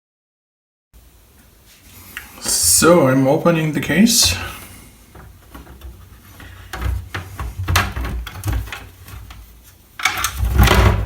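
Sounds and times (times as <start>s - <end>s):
plastic clattering: 4.1s - 11.0s.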